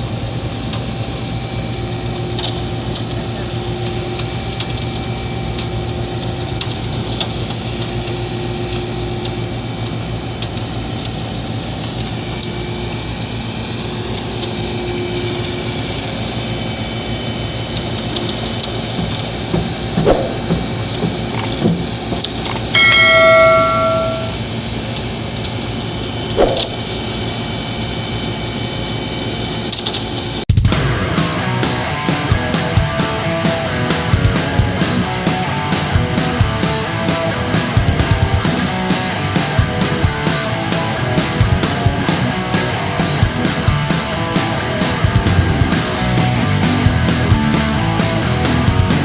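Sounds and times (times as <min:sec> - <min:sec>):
heavy machinery engine running: 0:31.0 - 0:49.0.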